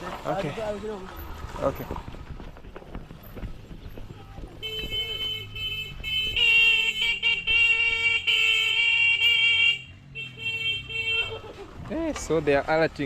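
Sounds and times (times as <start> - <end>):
vehicle horn honking: 4.6 - 11.6.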